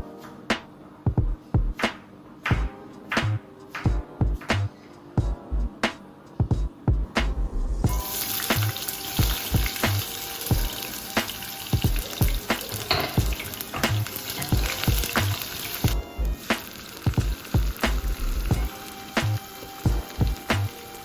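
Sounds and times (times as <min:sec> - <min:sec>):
background music with steady beat: 0:00.0 - 0:21.0
food sizzling in hot oil: 0:07.9 - 0:21.0.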